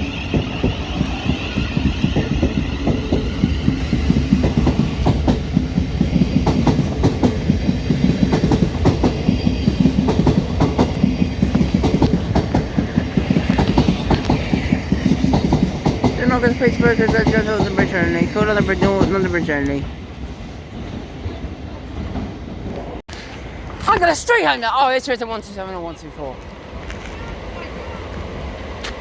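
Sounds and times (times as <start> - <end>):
train wheels clattering: 0.0 - 19.8
low train rumble: 0.0 - 29.0.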